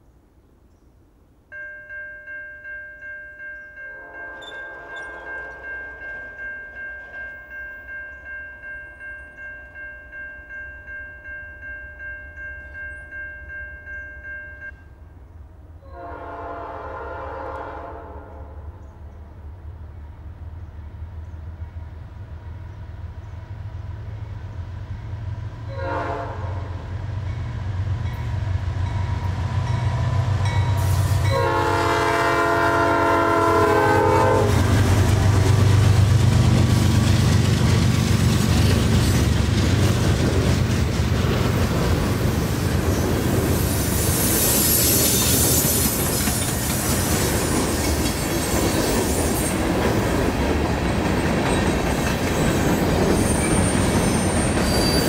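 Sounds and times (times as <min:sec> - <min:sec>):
locomotive air horn blasts: 0:03.9 - 0:05.9, 0:15.8 - 0:18.7, 0:25.7 - 0:26.8, 0:30.7 - 0:34.8
train wheel clatter: 0:04.4 - 0:07.9, 0:33.8 - 0:55.0
high wheel squeal: 0:43.6 - 0:49.6, 0:52.6 - 0:55.0.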